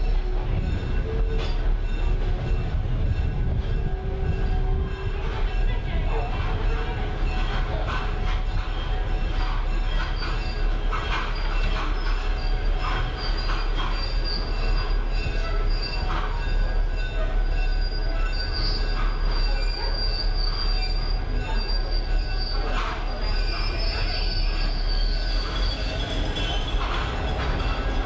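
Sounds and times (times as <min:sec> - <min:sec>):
train car rumbling: 0:00.0 - 0:28.0
high wheel squeal: 0:06.6 - 0:28.0.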